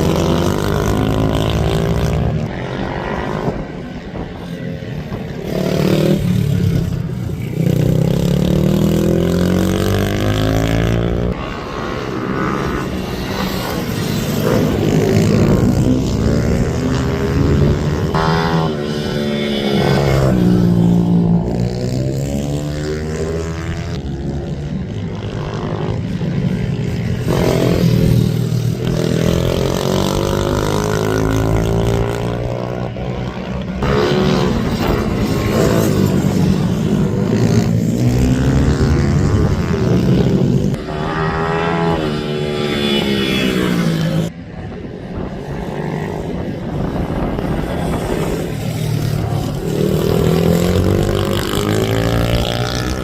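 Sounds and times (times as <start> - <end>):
minibike engines revving: 45.4 - 53.0.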